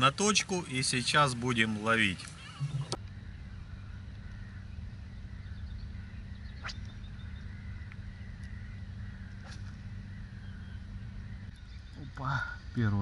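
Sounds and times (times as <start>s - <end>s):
distant birds calling: 0.0s - 13.0s
steady low rumble: 2.7s - 13.0s.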